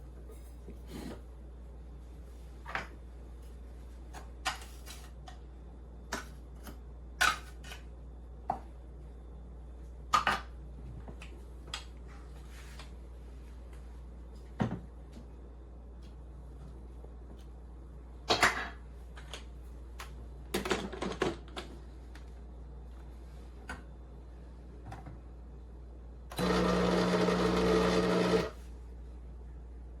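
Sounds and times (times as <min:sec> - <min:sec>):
coffee appliance buzzing: 0:26.3 - 0:28.6.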